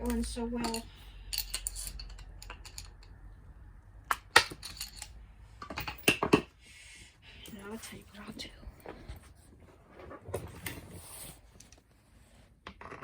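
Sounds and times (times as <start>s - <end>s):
metal parts and tools clinking: 0.0s - 3.2s, 4.1s - 6.5s.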